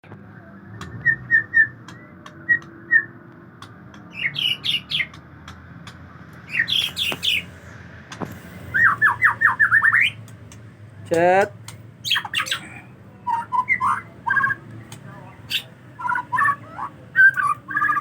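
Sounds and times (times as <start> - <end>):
bird singing whistled phrases: 0.6 - 3.2, 4.1 - 5.1, 6.5 - 7.5, 8.7 - 10.2, 13.2 - 14.6, 15.5 - 18.0
bird chirps: 4.1 - 5.2, 6.4 - 7.6, 8.6 - 10.2, 12.0 - 18.0.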